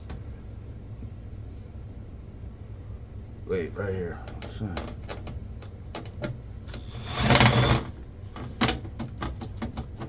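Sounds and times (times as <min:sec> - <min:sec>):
power screwdriver running: 0:06.7 - 0:08.0.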